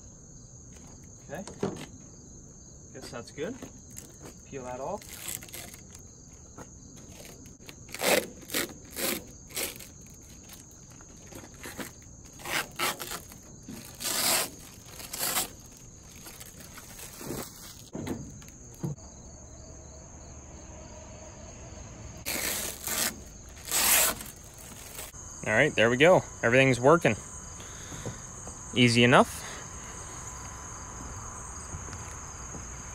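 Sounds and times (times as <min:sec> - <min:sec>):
high drone of insects: 0:00.0 - 0:32.9
plastic film crinkling rips: 0:05.0 - 0:06.0, 0:07.0 - 0:17.9, 0:22.3 - 0:25.1.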